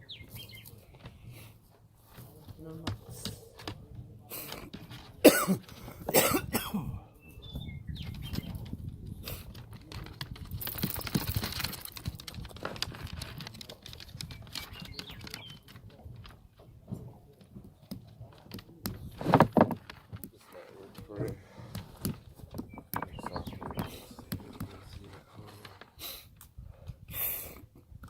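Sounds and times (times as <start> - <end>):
rustling and flapping of hide: 7.9 - 26.0
clicks and taps: 21.7 - 24.7.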